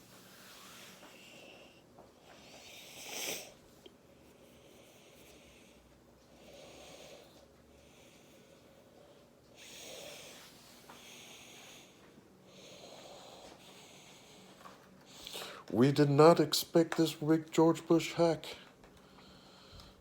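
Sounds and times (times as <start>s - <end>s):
slow breathing: 4.2s - 15.7s, 18.6s - 20.0s.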